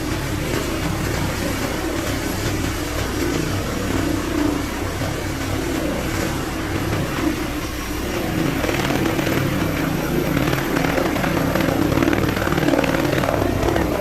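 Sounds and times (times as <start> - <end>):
helicopter engine and rotor: 0.0 - 14.0.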